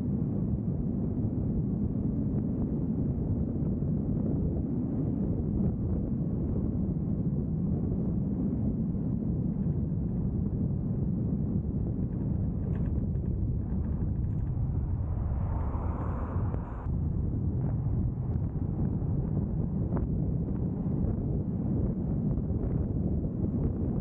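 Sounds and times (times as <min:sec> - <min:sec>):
vehicle driving on road: 0:12.0 - 0:19.5.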